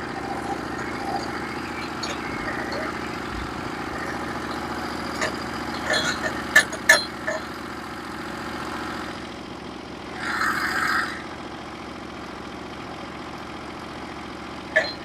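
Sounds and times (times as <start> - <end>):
bandsaw mill cutting log: 0.0 - 9.3.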